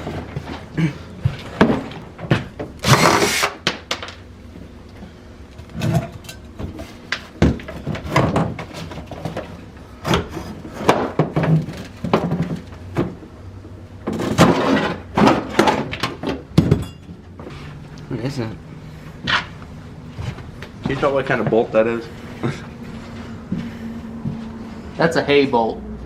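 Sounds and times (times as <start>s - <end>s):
demolition knocks and clanks: 0.0s - 4.7s, 5.6s - 17.6s, 19.2s - 22.7s.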